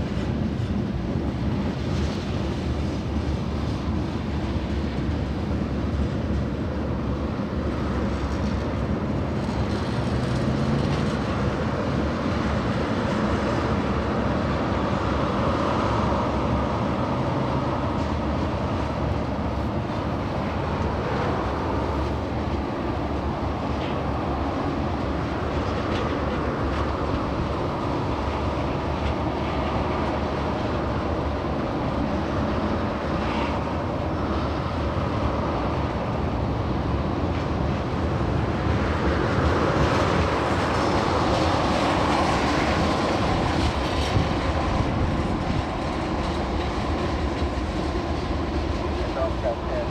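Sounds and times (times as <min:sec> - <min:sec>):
freight train rumbling by: 0:00.0 - 0:49.9.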